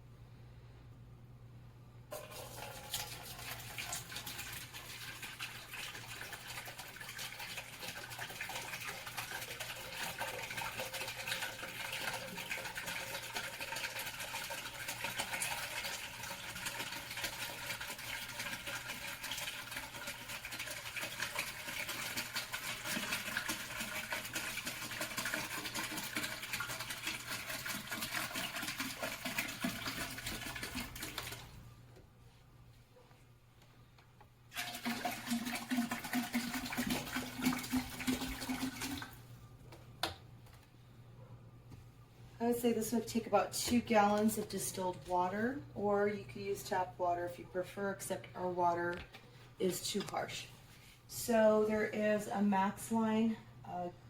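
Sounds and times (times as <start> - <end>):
water pouring into plastic tank: 2.1 - 31.6, 34.5 - 39.3.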